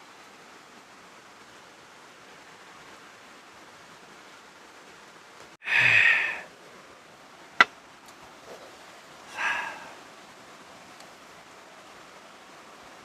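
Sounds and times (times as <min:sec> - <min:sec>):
rain hissing: 0:00.0 - 0:13.0
person exhaling: 0:05.6 - 0:06.5, 0:09.3 - 0:10.0.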